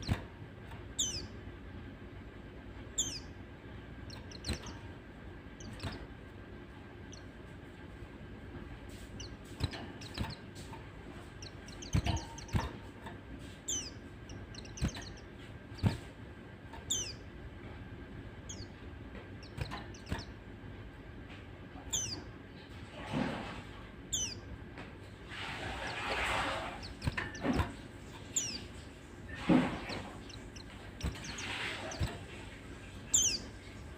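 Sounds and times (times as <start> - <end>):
bird giving high chirps: 0.9 - 1.4, 3.0 - 3.4, 13.7 - 15.2, 16.8 - 17.2, 21.9 - 22.3, 24.1 - 24.4, 28.3 - 28.7, 33.1 - 33.6.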